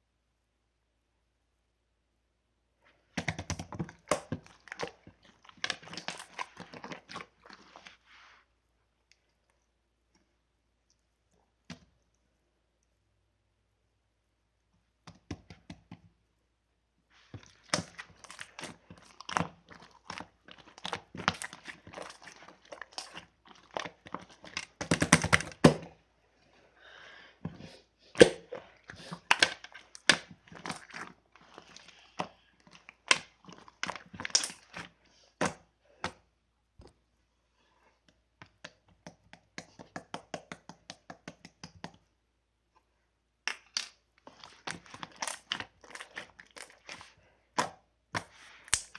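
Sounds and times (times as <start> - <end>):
crinkling and tearing: 17.2 - 25.7, 28.2 - 34.9.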